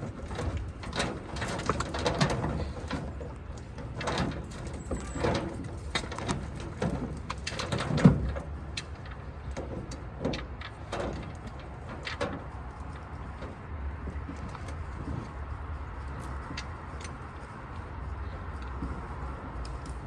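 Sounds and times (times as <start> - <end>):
knocks and clanks on metal: 0.0 - 12.6.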